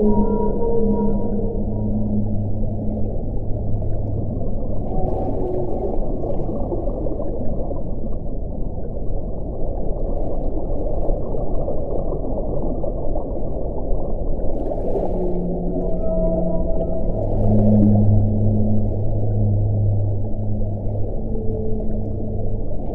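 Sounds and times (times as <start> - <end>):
faint held tones: 0.0 - 6.2, 15.2 - 22.9.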